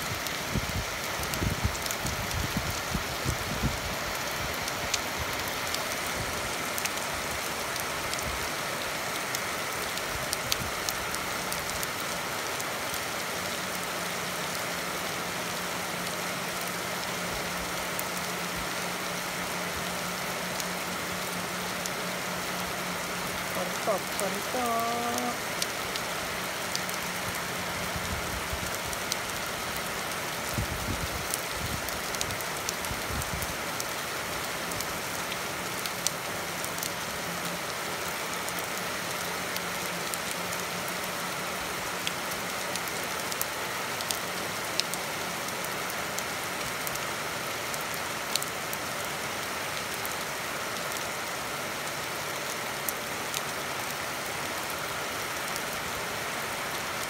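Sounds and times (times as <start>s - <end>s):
steady rain on street: 0.0s - 57.0s.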